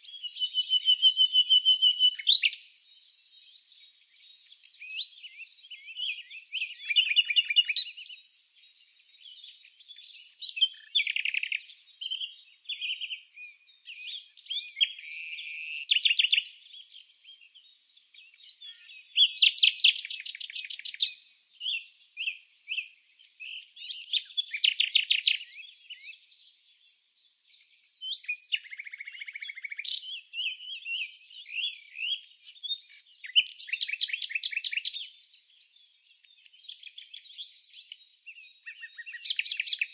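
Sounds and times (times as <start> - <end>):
birdsong chirps and whistles: 0.0 - 39.9.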